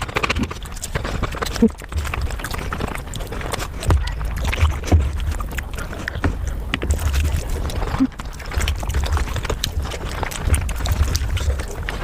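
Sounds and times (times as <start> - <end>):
wet chewing and smacking: 0.0 - 12.0.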